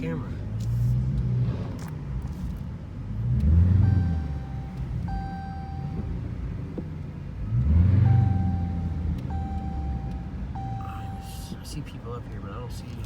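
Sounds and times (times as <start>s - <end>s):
car engines rumbling: 0.0s - 13.0s
electronic beeps: 3.8s - 6.2s, 8.0s - 11.5s.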